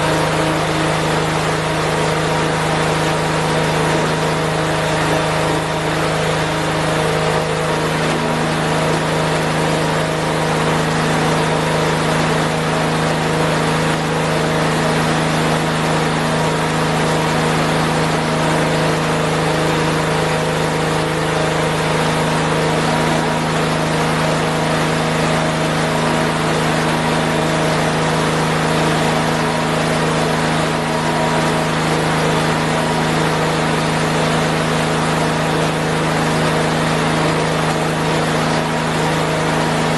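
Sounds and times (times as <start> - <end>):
garden tractor engine running: 0.0 - 39.9.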